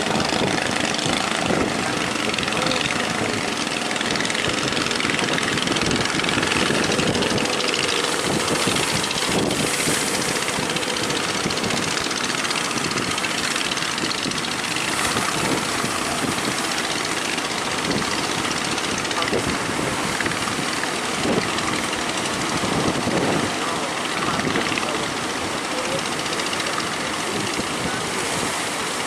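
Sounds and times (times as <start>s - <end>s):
loud rushing noise: 0.0s - 20.6s
boat engine running: 0.0s - 29.0s.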